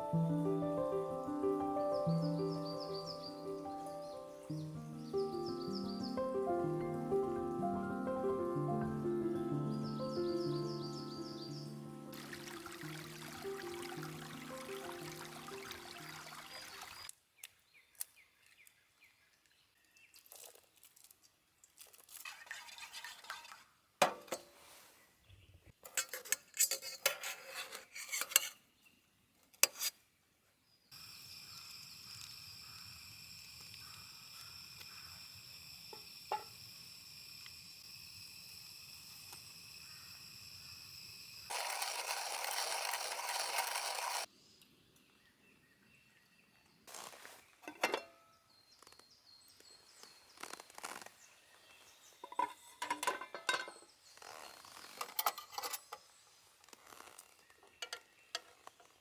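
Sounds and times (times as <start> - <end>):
hiss: 31.0 - 41.5
cookware and utensils clinking: 47.6 - 48.3, 52.2 - 53.8, 57.8 - 58.6.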